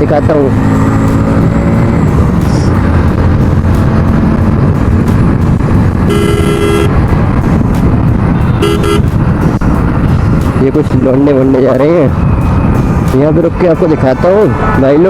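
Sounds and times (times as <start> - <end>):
motorcycle engine rumble: 0.0 - 15.0
vehicle horn toots: 6.0 - 7.0, 8.5 - 9.2.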